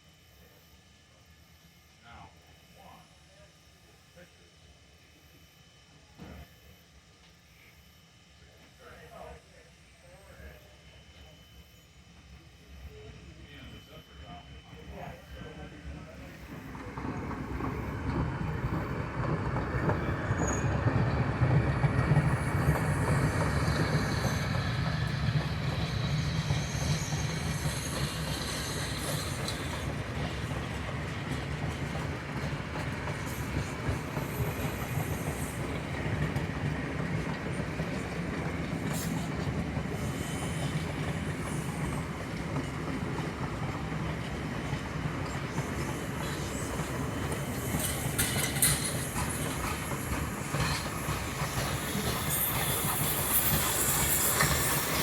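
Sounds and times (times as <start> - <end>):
steam train passing: 7.5 - 55.0
train cars rolling on rails: 12.6 - 55.0
high wheel squeals: 17.0 - 31.3, 37.9 - 42.4, 44.6 - 55.0.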